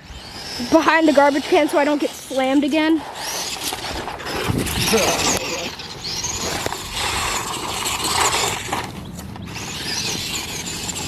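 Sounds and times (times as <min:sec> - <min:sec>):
rc truck motor whine: 0:00.0 - 0:11.0
tyres crunching on dirt: 0:03.0 - 0:11.0.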